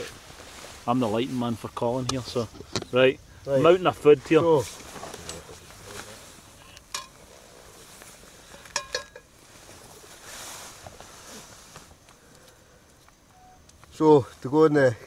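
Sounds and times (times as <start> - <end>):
utensil clinking against pan: 8.7 - 9.3.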